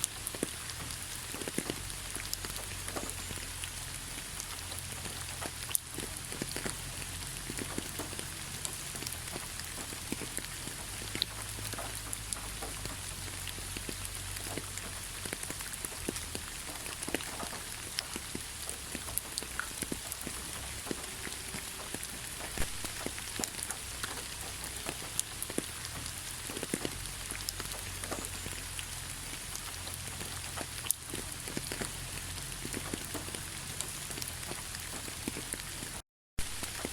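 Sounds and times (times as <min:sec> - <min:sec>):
raindrop impacts: 0:00.0 - 0:36.9
heavy rain hiss: 0:16.2 - 0:36.9.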